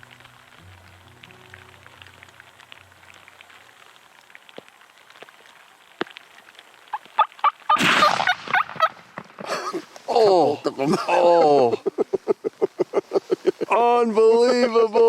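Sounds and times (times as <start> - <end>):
soundtrack music: 0.0 - 3.0
faint ticks and patter: 0.0 - 7.8, 8.8 - 15.0
turkeys calling and gobbling: 6.9 - 9.0.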